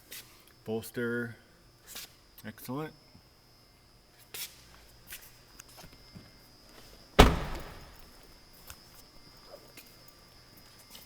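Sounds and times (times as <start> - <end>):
car door shutting with thud: 7.2 - 8.1.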